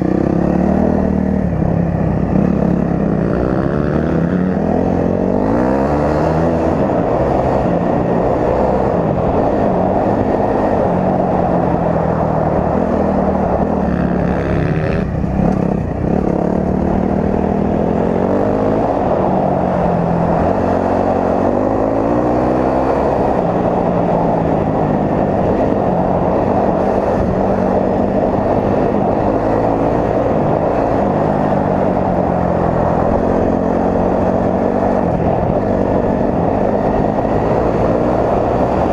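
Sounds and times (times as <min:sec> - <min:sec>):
dirt bike engine revving: 0:02.2 - 0:07.6, 0:12.7 - 0:23.5.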